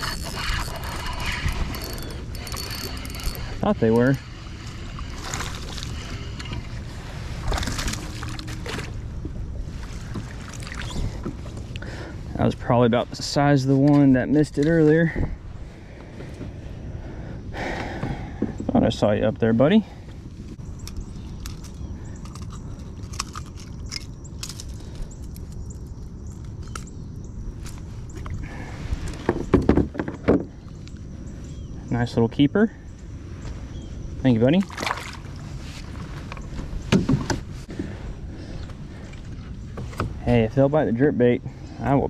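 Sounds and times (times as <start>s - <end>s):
fishing gear clicks: 0.0s - 4.1s, 20.8s - 26.9s
water lapping around kayak hull: 0.0s - 19.0s, 32.9s - 40.6s
water splash: 34.7s - 35.3s.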